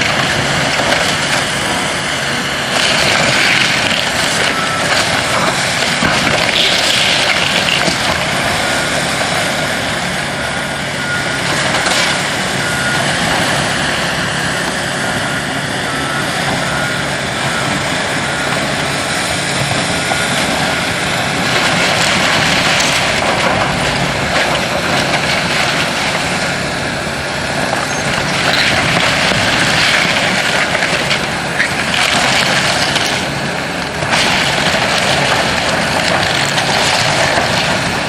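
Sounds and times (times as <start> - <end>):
machinery engines running: 0.0 - 38.0
debris crunching and grinding: 2.6 - 10.1, 27.5 - 38.0.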